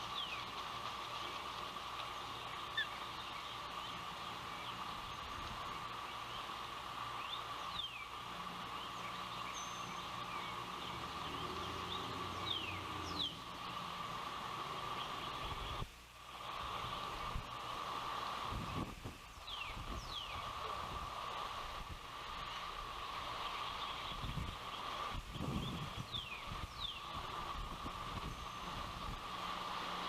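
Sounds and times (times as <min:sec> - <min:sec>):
ospreys calling: 0:00.0 - 0:18.5, 0:19.4 - 0:30.0
constant hum: 0:00.0 - 0:30.0
wind noise: 0:15.4 - 0:30.0.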